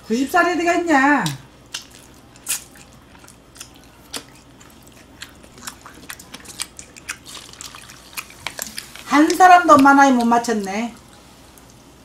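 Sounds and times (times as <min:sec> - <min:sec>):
crunchy chewing: 0:01.2 - 0:10.3.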